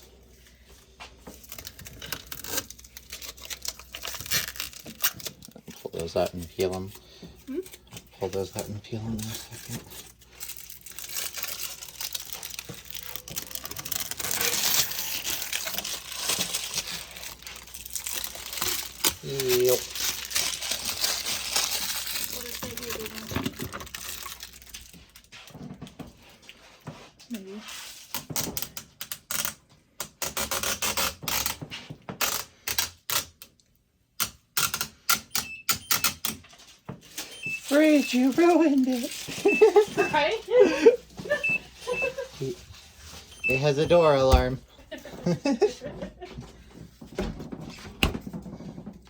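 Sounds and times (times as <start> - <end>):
plastic film crackling: 0.4 - 25.3, 37.0 - 44.6.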